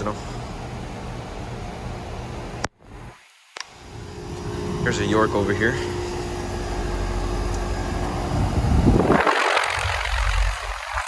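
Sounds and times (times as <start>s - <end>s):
air conditioner unit humming: 0.0s - 3.1s, 3.7s - 10.9s
rush of air: 3.9s - 11.0s.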